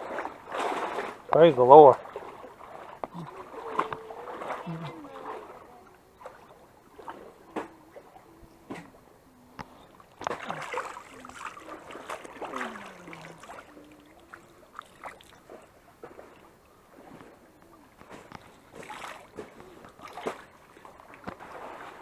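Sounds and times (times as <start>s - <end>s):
water sloshing and splashing: 0.0s - 22.0s
faint voices: 3.1s - 6.7s, 7.3s - 14.8s.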